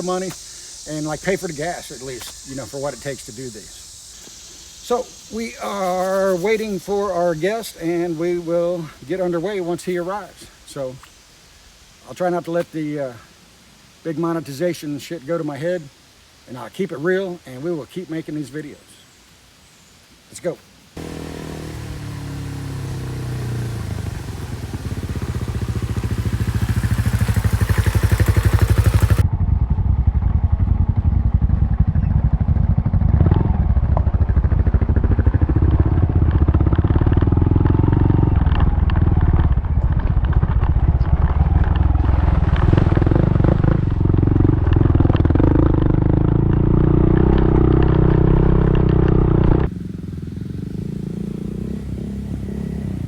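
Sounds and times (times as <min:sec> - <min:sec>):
small motorcycle engine running: 0:21.0 - 0:53.0.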